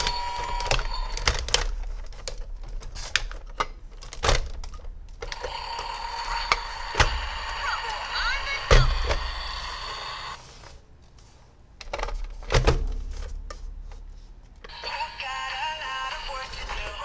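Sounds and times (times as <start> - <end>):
plastic toy parts clicking: 0.0 - 10.3.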